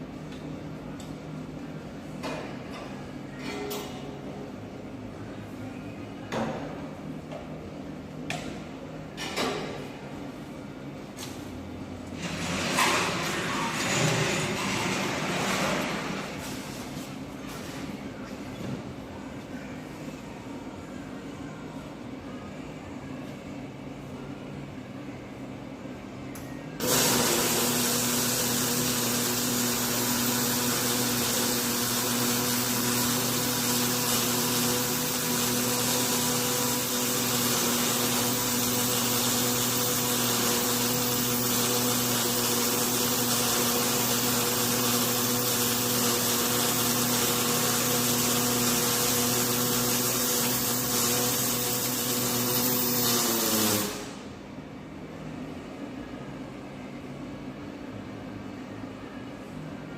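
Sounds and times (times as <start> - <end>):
power tool motor humming: 26.8 - 54.2.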